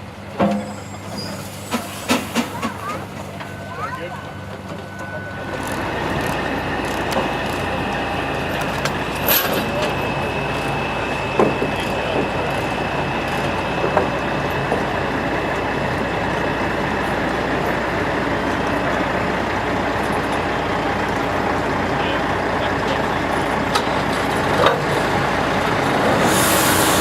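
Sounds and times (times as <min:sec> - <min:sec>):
heavy machinery engine rumble: 0:00.0 - 0:27.0
metal clanks: 0:08.6 - 0:10.0.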